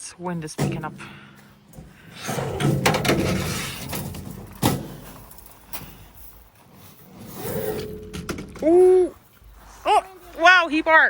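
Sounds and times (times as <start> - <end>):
sharp knocks and clatters: 0.6 - 6.0.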